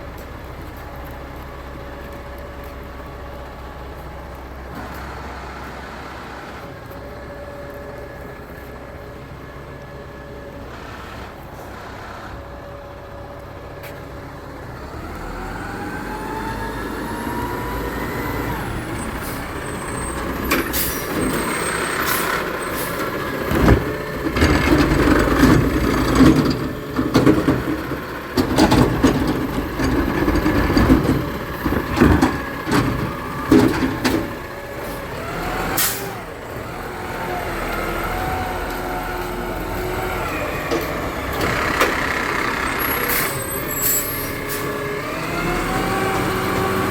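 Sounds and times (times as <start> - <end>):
garbage truck diesel engine: 0.0 - 46.9
air brakes hissing: 18.9 - 23.4, 35.8 - 36.2, 41.4 - 44.9
bin clanking and banging: 20.4 - 34.4.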